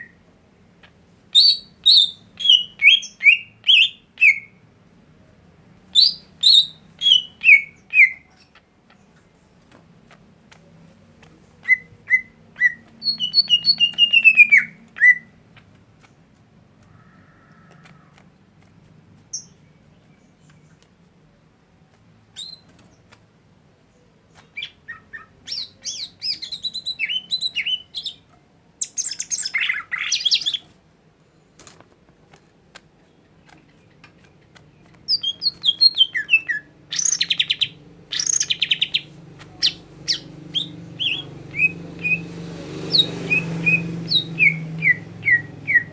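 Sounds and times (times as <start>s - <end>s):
songbird chirping and trilling: 0.8s - 4.6s, 5.8s - 9.8s, 11.2s - 16.2s, 19.2s - 21.4s, 22.3s - 23.1s, 23.8s - 30.8s, 33.0s - 45.9s.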